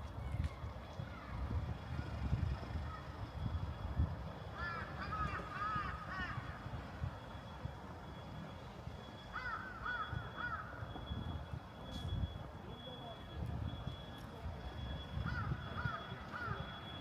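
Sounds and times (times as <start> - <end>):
crow cawing harshly: 4.6 - 6.6, 9.3 - 10.8.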